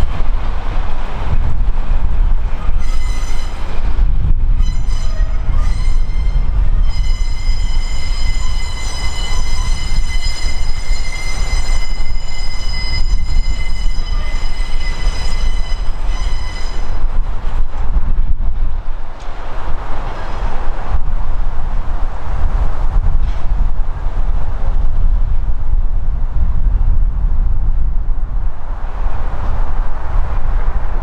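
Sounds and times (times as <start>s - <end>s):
heavy low rumble: 0.0s - 31.0s
train wheels squealing: 2.6s - 3.8s, 4.6s - 17.1s.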